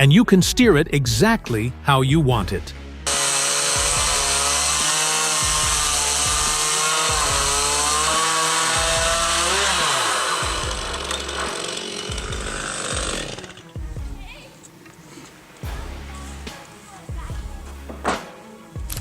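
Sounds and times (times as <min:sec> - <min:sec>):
low pulsing beat: 0:00.0 - 0:02.9, 0:03.7 - 0:11.5, 0:12.1 - 0:14.4, 0:15.6 - 0:18.1
chainsaw cutting wood: 0:03.1 - 0:14.0, 0:17.8 - 0:19.0.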